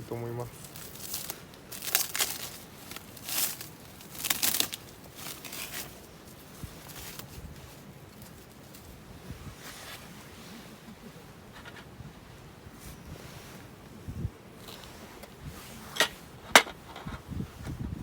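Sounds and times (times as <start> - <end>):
plastic packaging crinkling: 0.7 - 5.8.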